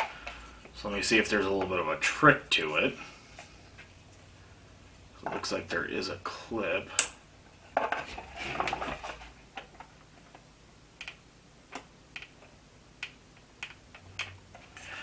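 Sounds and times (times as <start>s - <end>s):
rustling: 7.6s - 10.4s.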